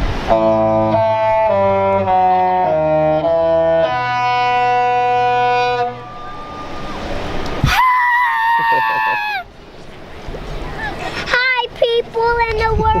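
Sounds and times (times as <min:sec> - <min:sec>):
brass-like horn chords: 0:00.1 - 0:07.4.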